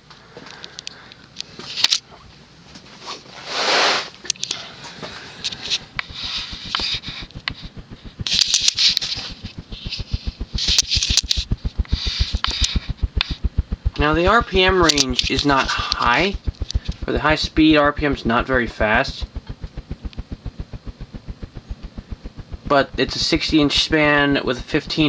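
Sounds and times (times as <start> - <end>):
ceiling fan air pulses: 0.0 - 25.0
airy whooshing: 5.2 - 17.5.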